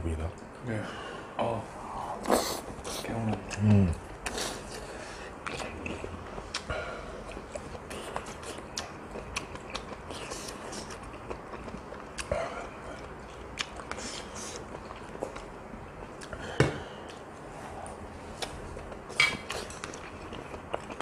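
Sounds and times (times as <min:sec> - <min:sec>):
person chewing with mouth clicks: 0:02.2 - 0:15.5, 0:16.1 - 0:16.4, 0:17.0 - 0:21.0.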